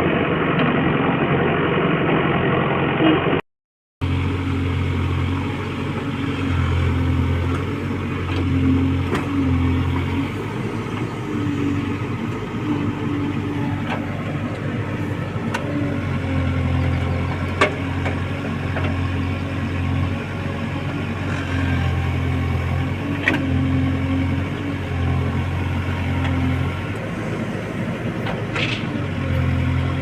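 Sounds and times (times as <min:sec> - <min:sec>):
diesel engine running: 0:04.0 - 0:30.0.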